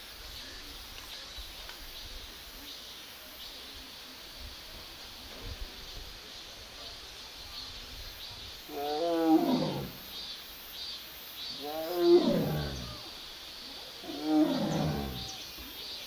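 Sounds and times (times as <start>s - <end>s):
tiger calling: 8.7s - 10.0s, 11.6s - 13.2s, 14.0s - 15.5s.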